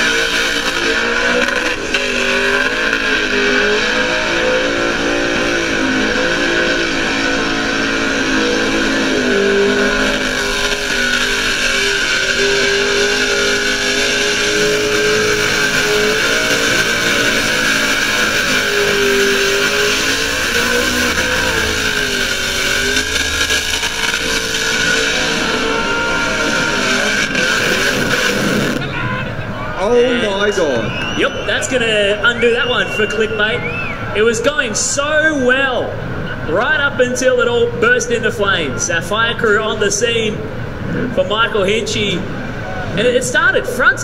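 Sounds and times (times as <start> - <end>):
tyres spinning: 0.0 - 30.0
car engine at high revs: 0.0 - 44.0.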